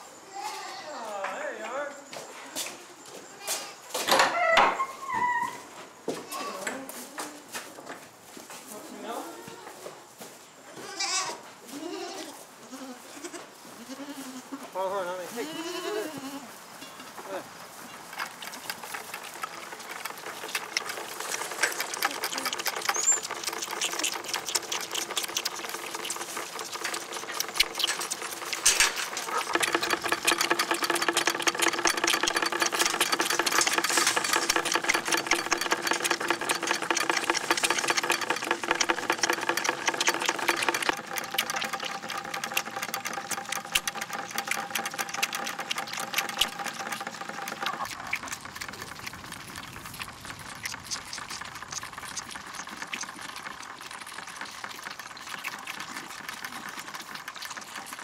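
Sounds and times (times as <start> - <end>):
small machine clattering: 18.0 - 58.0
steady machine hum: 19.9 - 48.9.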